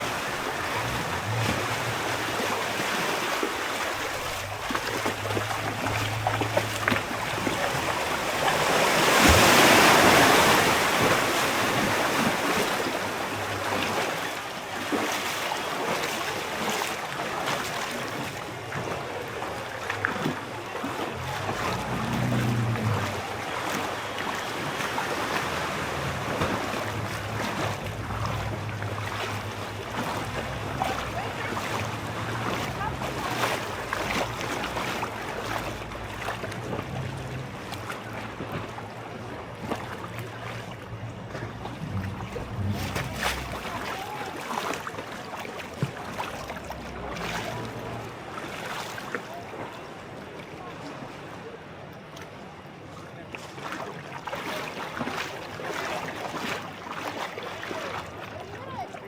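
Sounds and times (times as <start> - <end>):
sea waves: 0.0 - 59.0
low hum: 4.0 - 9.4, 21.2 - 44.0.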